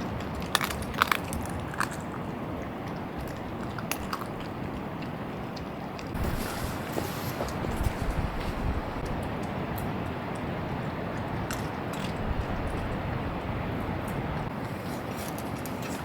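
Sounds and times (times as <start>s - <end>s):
strong wind on microphone: 6.1s - 14.6s.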